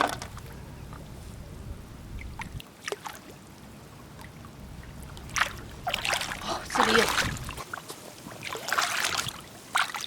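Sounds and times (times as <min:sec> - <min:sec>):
low steady rumble: 0:00.0 - 0:02.7, 0:03.3 - 0:07.7
seawater trickling: 0:00.0 - 0:10.0.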